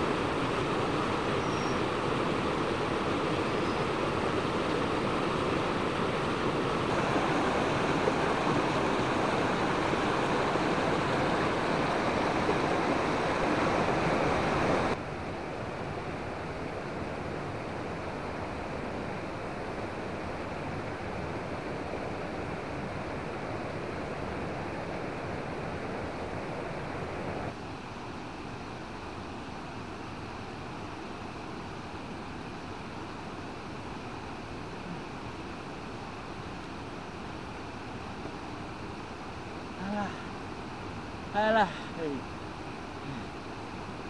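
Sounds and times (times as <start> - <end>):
rushing water: 0.0 - 44.0.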